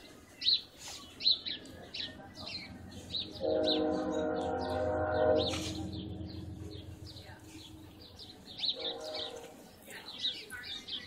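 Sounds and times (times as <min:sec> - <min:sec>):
bird chirping: 0:00.0 - 0:11.0
low rumble: 0:02.7 - 0:09.0
steady horn-like tone: 0:03.4 - 0:07.0, 0:08.8 - 0:09.6.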